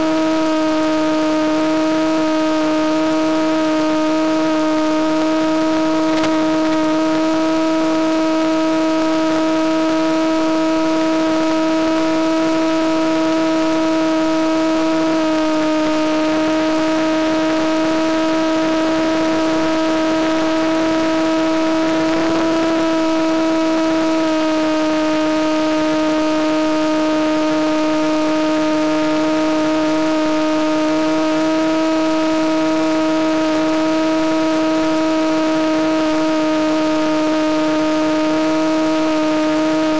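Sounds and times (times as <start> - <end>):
model airplane motor droning: 0.0 - 39.9.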